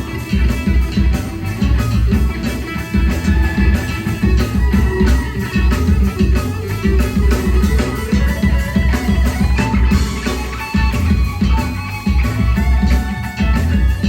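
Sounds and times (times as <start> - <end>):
bass guitar: 0.0 - 14.0
electric guitars: 0.0 - 14.0
steady drum beat: 0.0 - 14.0.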